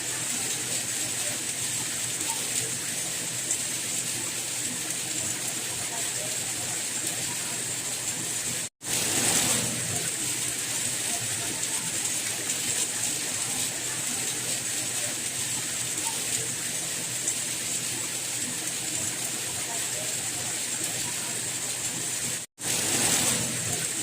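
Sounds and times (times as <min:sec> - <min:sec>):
steady rain: 0:00.0 - 0:24.0.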